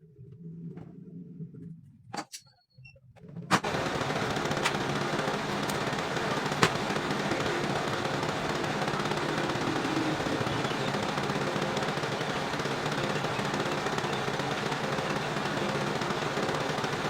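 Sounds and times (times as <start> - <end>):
fan motor rattling whir: 3.6 - 17.0.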